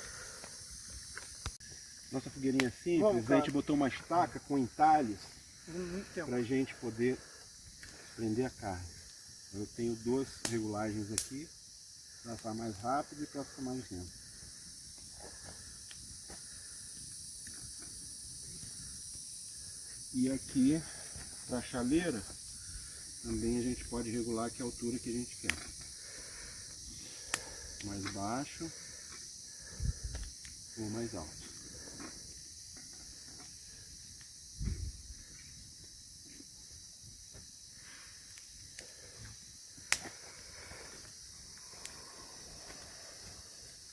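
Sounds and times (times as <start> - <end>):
high-pitched insect chorus: 0.0 - 43.9
steady high hiss: 0.0 - 43.9
campfire clicks and pops: 0.3 - 5.7, 7.4 - 12.9, 14.1 - 19.7, 24.8 - 43.9.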